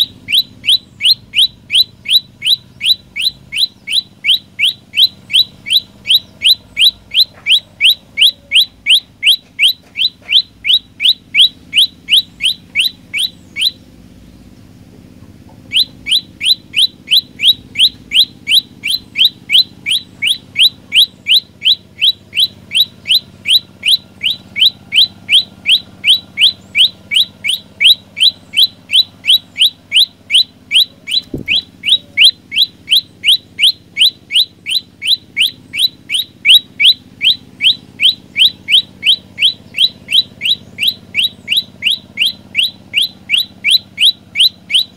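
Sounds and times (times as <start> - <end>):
bird chirping rapidly: 0.0 - 44.9.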